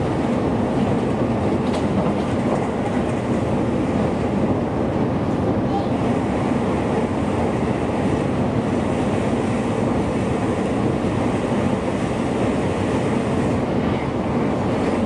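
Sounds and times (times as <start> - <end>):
electric train running noise: 6.0 - 15.0.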